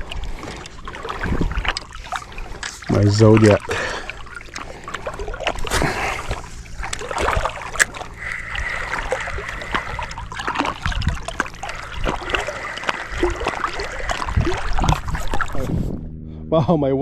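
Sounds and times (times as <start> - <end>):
water lapping around boat: 0.0 - 16.0.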